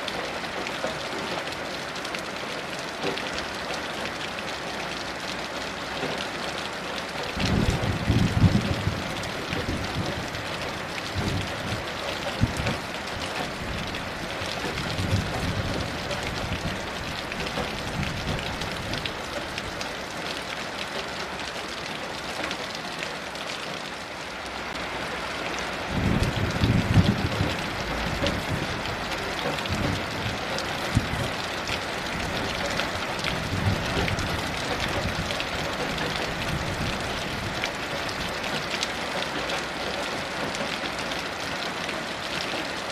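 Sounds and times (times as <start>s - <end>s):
distant thunder rumbling: 7.4s - 19.1s, 25.9s - 38.4s.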